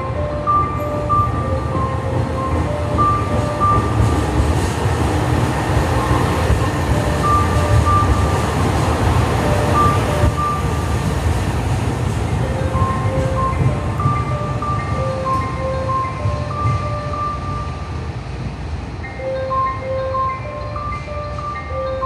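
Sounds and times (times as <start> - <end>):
chime melody: 0.0 - 4.1, 6.0 - 8.6, 9.3 - 10.8, 12.4 - 17.8, 19.0 - 22.0
diesel train rumble: 0.0 - 22.0.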